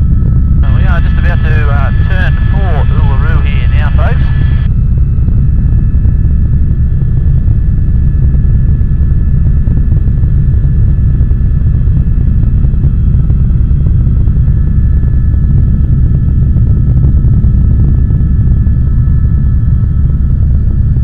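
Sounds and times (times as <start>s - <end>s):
faint high whine: 0.0s - 10.0s
helicopter rotor and engine rumble: 0.0s - 21.0s.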